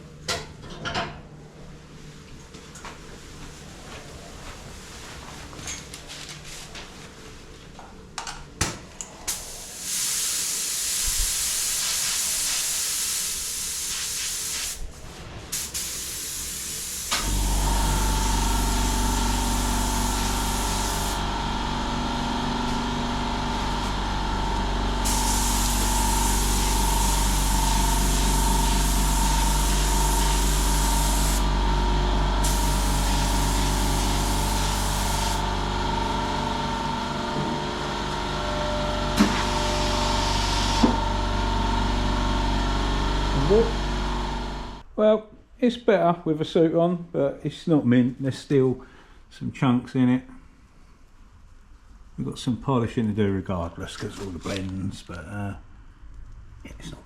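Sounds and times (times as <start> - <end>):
spray gun hissing: 9.3 - 21.3, 25.0 - 31.5, 32.4 - 35.4
motor humming: 17.1 - 44.8.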